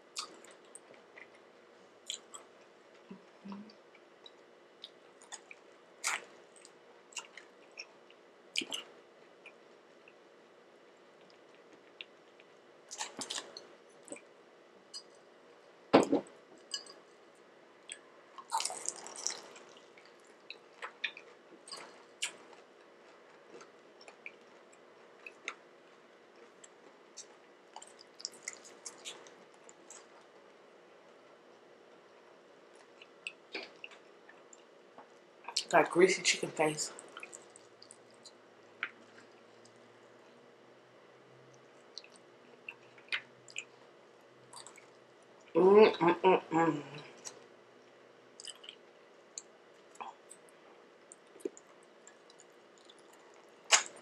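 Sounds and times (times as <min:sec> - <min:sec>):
chewing: 0:00.2 - 0:01.4, 0:02.0 - 0:10.2, 0:17.8 - 0:25.6, 0:26.4 - 0:30.3, 0:37.0 - 0:39.8, 0:41.5 - 0:43.8, 0:44.5 - 0:45.5, 0:48.4 - 0:54.0
crunching fried chicken: 0:17.9 - 0:24.4
wet mouth clicks and lip smacks: 0:48.4 - 0:48.8, 0:51.1 - 0:54.0.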